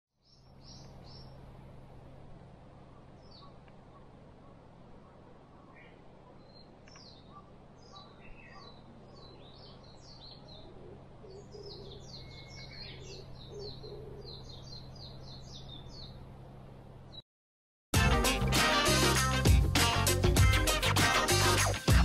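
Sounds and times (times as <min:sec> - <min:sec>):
songbird chattering calls: 0:03.0 - 0:16.1.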